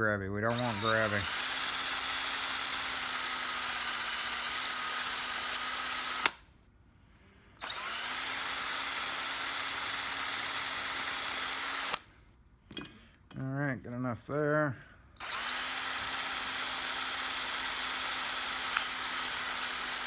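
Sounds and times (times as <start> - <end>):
power tool grinding metal: 0.5 - 6.4, 7.6 - 12.0, 15.2 - 20.0.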